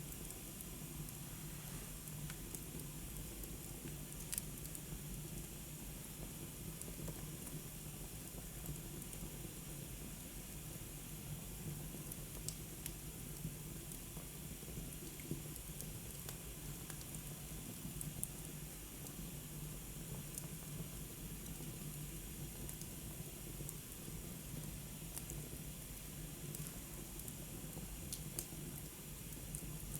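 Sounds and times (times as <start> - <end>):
wood fire crackling: 0.0 - 5.6, 11.9 - 19.2, 20.1 - 29.9
faint steady hiss: 0.0 - 29.9.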